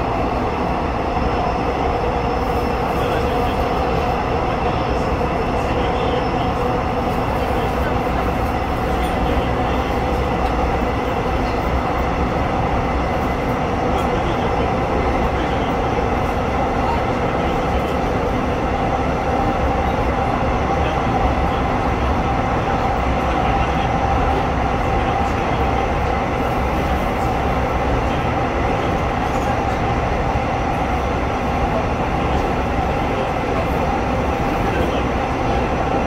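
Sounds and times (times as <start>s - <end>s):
constant hum: 0.0s - 36.0s.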